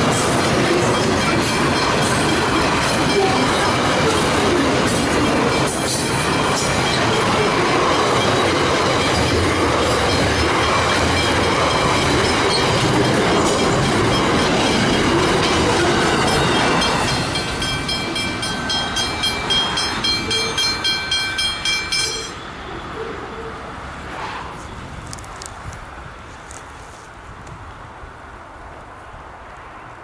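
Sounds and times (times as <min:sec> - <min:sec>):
train wheels rumbling on rail: 0:00.0 - 0:22.5
level-crossing bell ringing: 0:00.9 - 0:04.2, 0:05.2 - 0:22.6.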